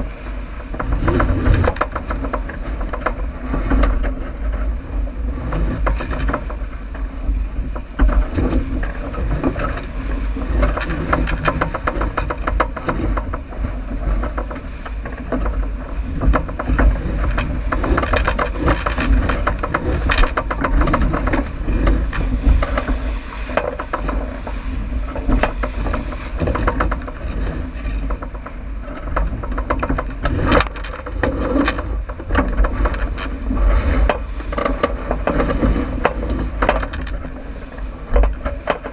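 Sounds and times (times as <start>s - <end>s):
short knocks and clatters: 0.0s - 4.7s, 5.3s - 38.9s
water slapping against boat hull: 0.0s - 38.9s
wind buffeting microphone: 0.0s - 38.9s.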